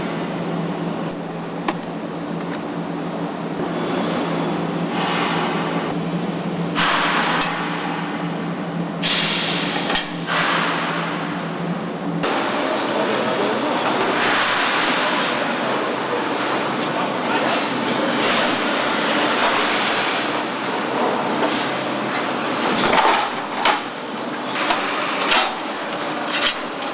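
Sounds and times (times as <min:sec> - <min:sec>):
machine hum: 0:00.0 - 0:03.6.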